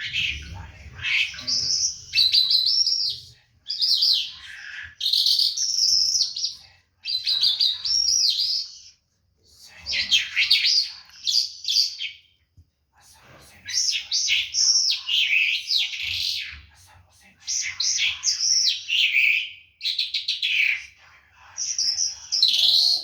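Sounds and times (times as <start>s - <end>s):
songbird warbling: 21.8s - 23.0s.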